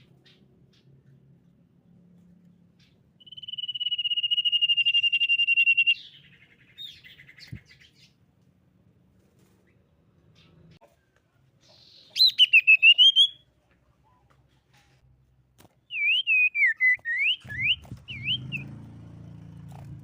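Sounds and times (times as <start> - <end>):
short bird notes: 2.8 - 8.1, 15.9 - 18.8
bird singing rapid trill: 2.8 - 8.2, 11.7 - 13.4, 15.9 - 19.0.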